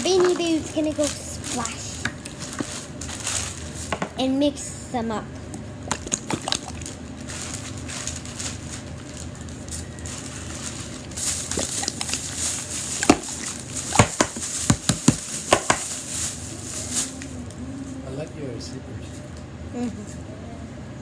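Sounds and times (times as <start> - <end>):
slime squelching: 0.0 - 3.8, 5.9 - 7.0, 11.0 - 15.8.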